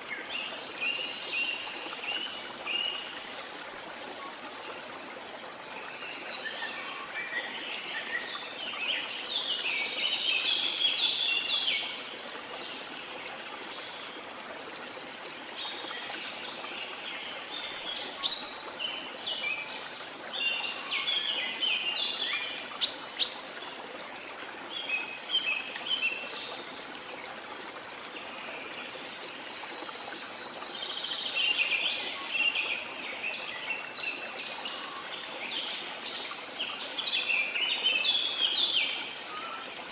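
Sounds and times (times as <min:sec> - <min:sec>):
rush of waterfall: 0:00.0 - 0:39.9
birds singing: 0:13.7 - 0:23.6, 0:30.5 - 0:39.9.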